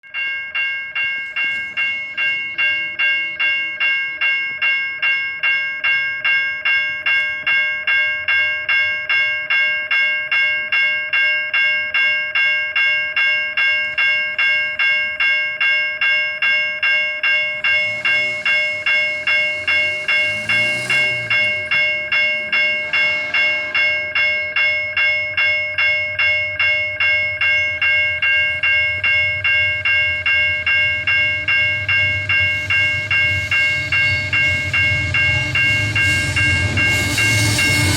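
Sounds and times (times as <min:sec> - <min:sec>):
diesel train approaching: 0:00.0 - 0:37.9
level-crossing warning bell ringing: 0:00.0 - 0:37.9
low locomotive rumble: 0:17.1 - 0:37.9.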